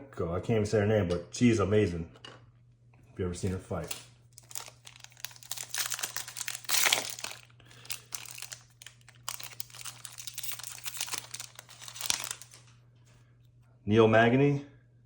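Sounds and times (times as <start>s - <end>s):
cards being flipped through: 3.8s - 12.7s.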